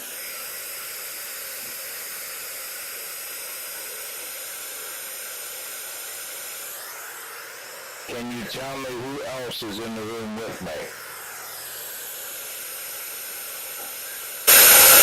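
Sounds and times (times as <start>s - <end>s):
white noise hiss: 8.1s - 15.0s.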